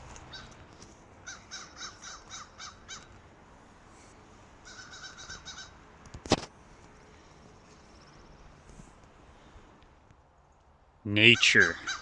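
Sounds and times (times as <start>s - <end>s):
bird harsh calls: 1.2s - 3.1s, 4.6s - 5.8s, 11.2s - 12.0s.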